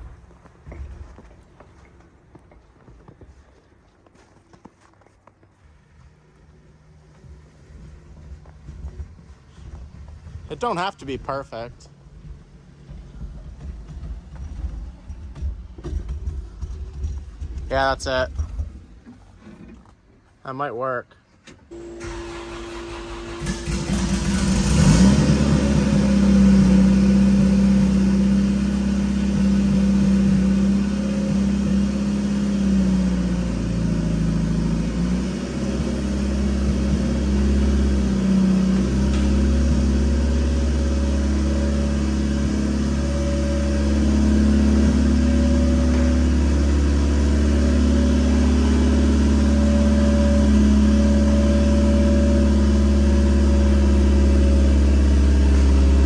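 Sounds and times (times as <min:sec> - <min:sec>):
car engine starting and idling: 0:21.4 - 0:56.0.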